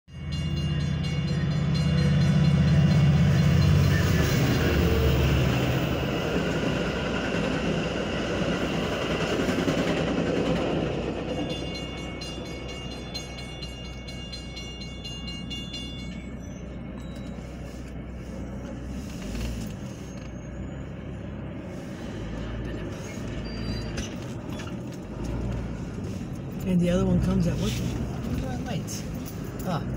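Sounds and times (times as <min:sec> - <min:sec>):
diesel train rumble: 0:00.0 - 0:29.9
crossing warning bell ringing: 0:00.1 - 0:18.9
road noise: 0:00.1 - 0:29.9.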